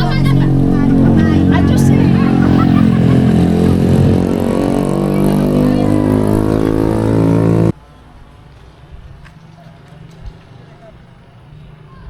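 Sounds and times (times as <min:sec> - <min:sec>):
motor engine running: 0:00.0 - 0:07.7.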